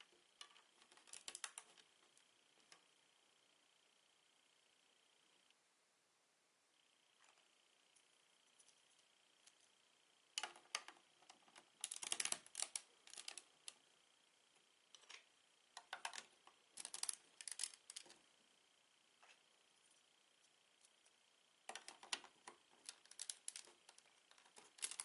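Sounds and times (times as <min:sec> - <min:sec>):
plastic bricks clicking together: 0:11.8 - 0:13.4, 0:15.8 - 0:18.1, 0:21.7 - 0:25.0.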